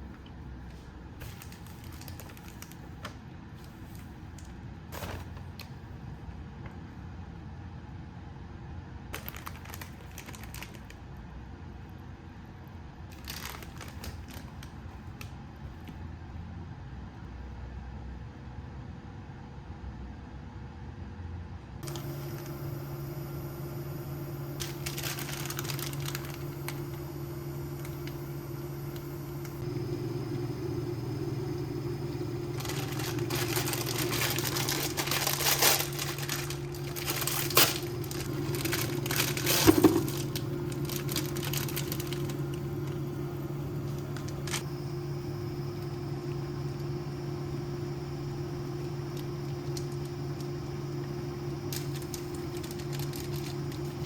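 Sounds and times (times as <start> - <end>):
packaging crinkling: 1.2 - 5.8, 9.2 - 11.0, 13.1 - 15.2, 24.5 - 28.2, 31.1 - 44.7, 48.2 - 54.0
steady low hum: 21.8 - 54.0.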